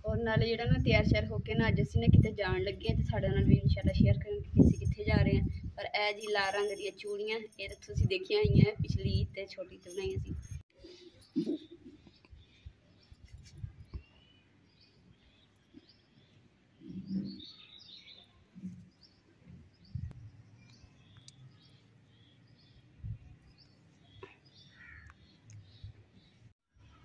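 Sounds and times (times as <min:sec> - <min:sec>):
faint birds chirping: 0:09.8 - 0:27.0.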